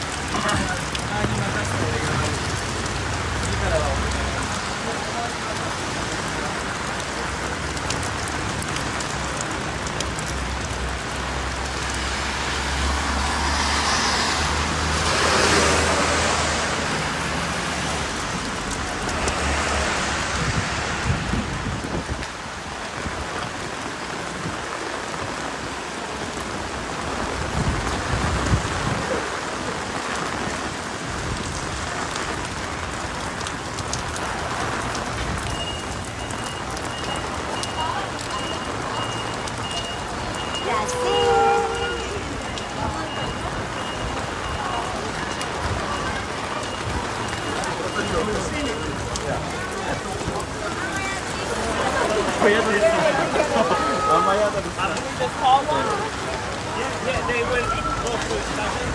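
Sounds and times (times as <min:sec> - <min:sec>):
rain falling on street: 0:00.0 - 0:58.9
vehicle passing on wet road: 0:00.0 - 0:58.9.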